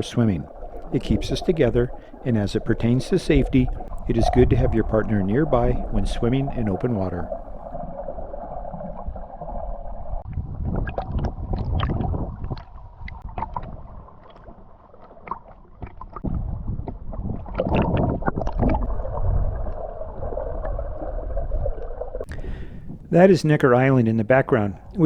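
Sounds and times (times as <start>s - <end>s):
boat motor hum: 0.0s - 7.8s
water slapping against hull: 0.0s - 7.8s
rumbling wind: 0.0s - 14.7s, 15.8s - 23.3s.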